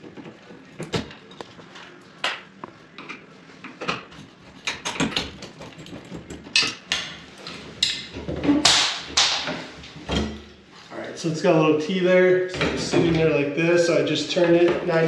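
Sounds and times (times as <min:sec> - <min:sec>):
metal parts clicking and rattling: 0:03.8 - 0:08.0.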